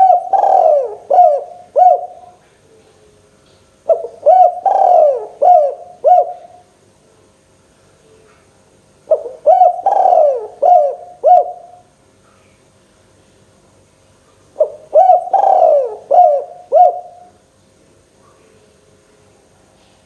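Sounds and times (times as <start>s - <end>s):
dove cooing: 0.0s - 3.2s, 3.9s - 6.6s, 9.1s - 11.8s, 14.6s - 17.4s.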